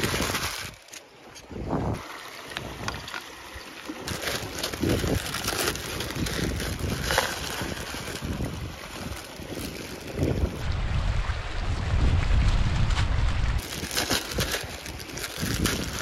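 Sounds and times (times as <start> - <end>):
wind buffeting microphone: 1.5 - 2.0, 4.1 - 16.0
low rumble: 10.3 - 14.5.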